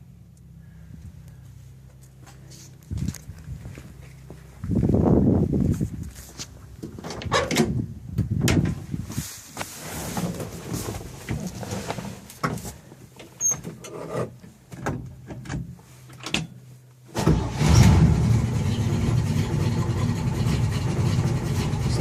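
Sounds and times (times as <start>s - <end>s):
truck engine starting and idling: 17.1s - 22.0s.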